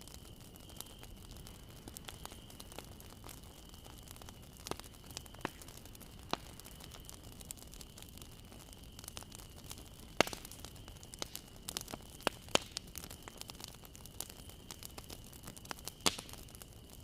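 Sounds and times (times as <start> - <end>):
loud fire snaps: 0.0 - 17.0
low rumble of flames: 0.0 - 17.0
wood fire crackling: 0.0 - 17.0.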